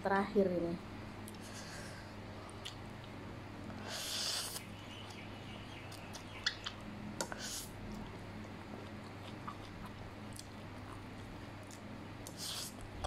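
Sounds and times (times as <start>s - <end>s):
chewing noodles: 7.8s - 13.0s.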